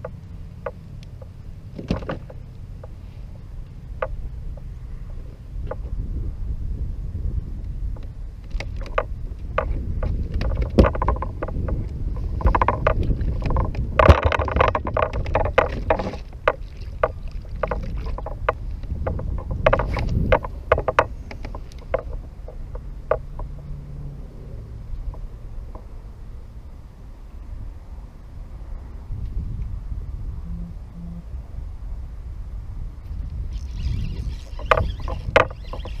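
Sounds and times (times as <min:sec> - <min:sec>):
gear knocking against kayak: 0:00.0 - 0:06.0, 0:07.9 - 0:23.8, 0:24.9 - 0:26.0, 0:33.5 - 0:36.0
wind and water rumble: 0:00.0 - 0:36.0.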